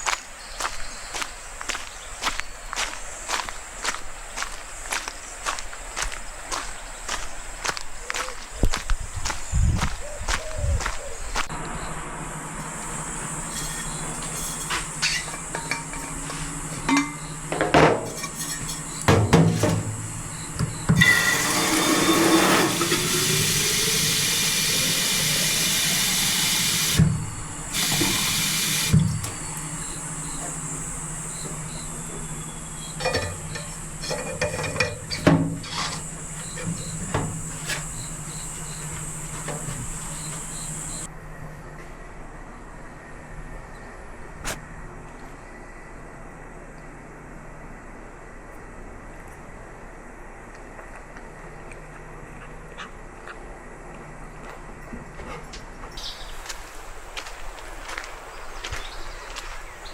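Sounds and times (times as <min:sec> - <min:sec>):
dishes clinking: 0:13.5 - 0:19.9
water pouring into a pot: 0:21.0 - 0:29.0.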